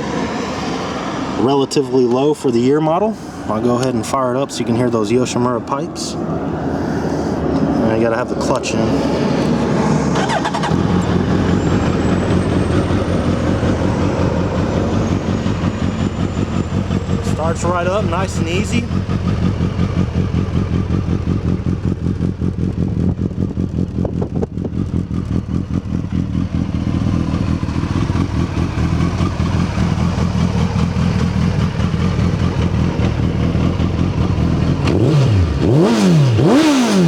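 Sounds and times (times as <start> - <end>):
motorcycle throttle blips: 9.4 - 37.0
motorcycle engine idling: 10.1 - 37.0.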